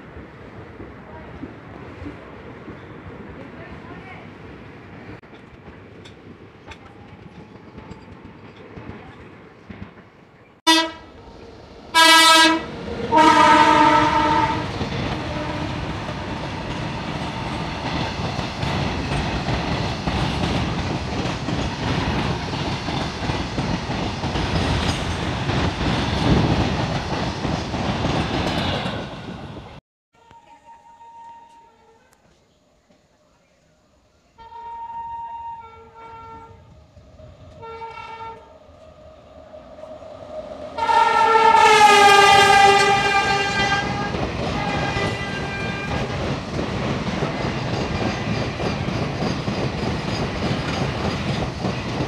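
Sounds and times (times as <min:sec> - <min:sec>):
freight train rumbling past: 0:00.0 - 0:29.8, 0:34.6 - 0:52.0
locomotive horn blasts: 0:10.6 - 0:11.2, 0:11.9 - 0:16.8, 0:30.2 - 0:32.0, 0:34.4 - 0:36.6, 0:37.6 - 0:38.5, 0:40.8 - 0:46.2.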